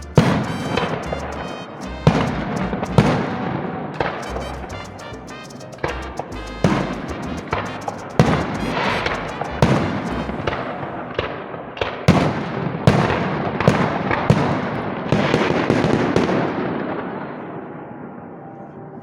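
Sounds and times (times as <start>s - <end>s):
fireworks bangs: 0.0s - 5.0s, 5.6s - 17.3s
fireworks crackling: 0.0s - 13.1s.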